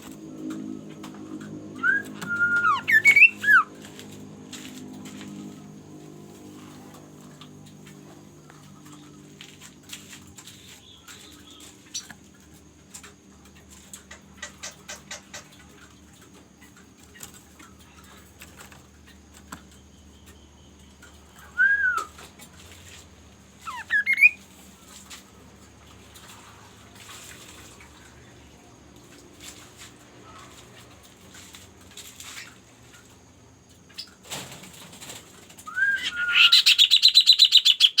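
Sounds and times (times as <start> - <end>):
bird whistled calls: 1.8 - 3.8, 21.4 - 22.2, 23.7 - 24.4, 35.7 - 38.0.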